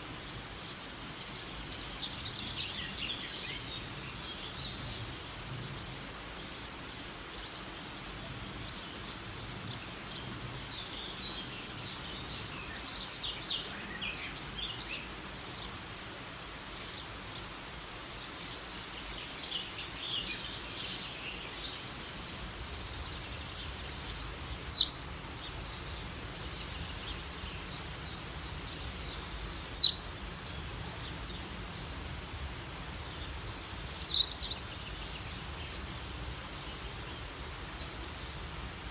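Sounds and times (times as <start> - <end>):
outdoor background hiss: 0.0 - 38.9
wild birds chirping: 0.0 - 38.9
loud high bird calls: 24.6 - 25.6, 29.6 - 31.3, 34.0 - 34.8.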